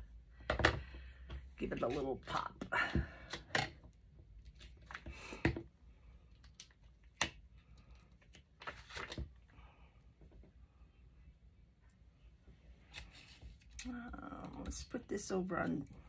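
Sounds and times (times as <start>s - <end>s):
paper rustling: 8.2s - 9.3s.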